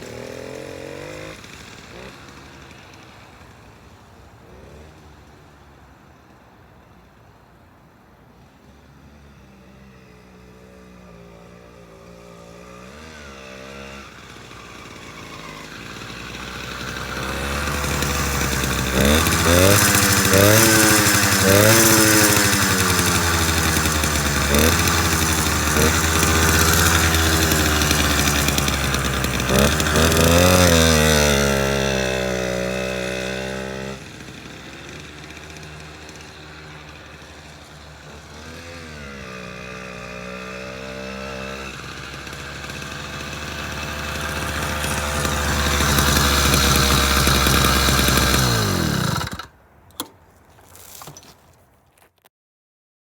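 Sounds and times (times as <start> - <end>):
small motorized bicycle engine: 0.0 - 5.0, 11.7 - 51.5.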